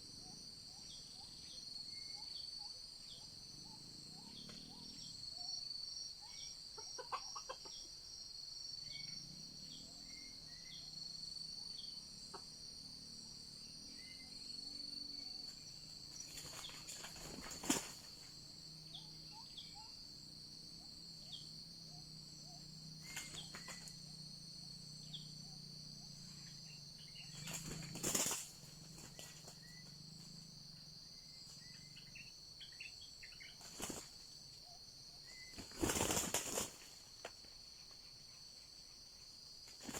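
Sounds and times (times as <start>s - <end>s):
insects droning: 0.0s - 39.9s
bird chirps: 0.2s - 7.9s, 18.8s - 20.0s, 21.2s - 24.2s, 31.2s - 33.9s.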